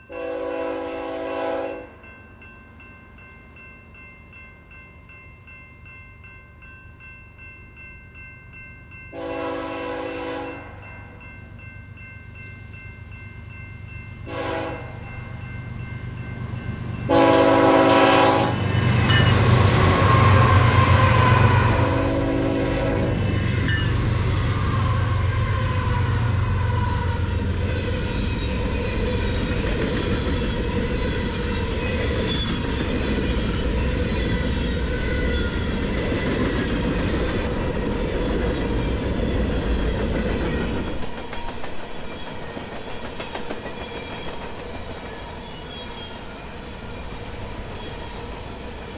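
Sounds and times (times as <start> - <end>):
train horn blasts: 0.0 - 2.0, 9.1 - 10.8, 14.2 - 15.1, 17.1 - 23.3
train wheel clatter: 27.2 - 48.9.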